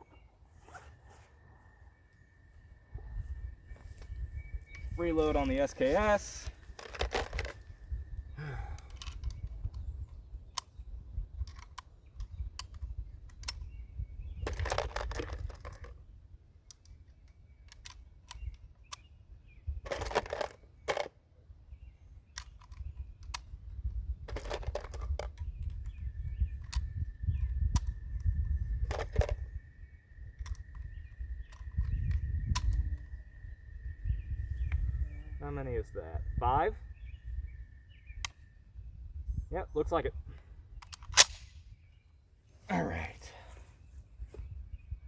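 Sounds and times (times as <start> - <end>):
rifle handling rattles: 4.8 - 7.8, 11.4 - 13.7, 14.4 - 16.0, 19.8 - 21.1, 24.2 - 26.0, 28.8 - 29.5, 30.4 - 32.9, 40.8 - 41.5
cartridges clicking into magazine: 40.8 - 41.6.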